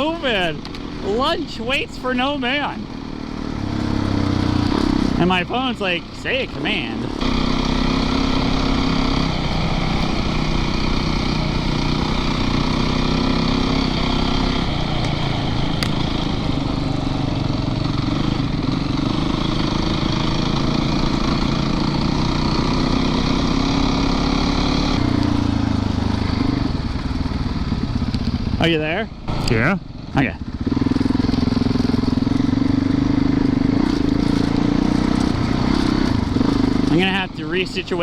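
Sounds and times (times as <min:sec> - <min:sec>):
dirt bike engine running: 0:00.0 - 0:38.0.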